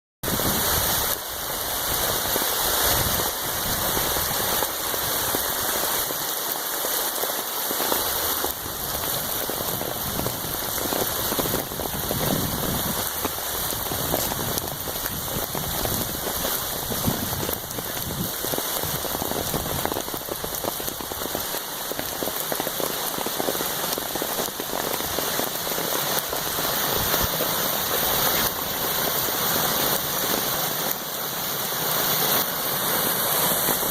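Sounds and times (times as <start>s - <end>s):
steady rain falling: 0.2s - 33.9s.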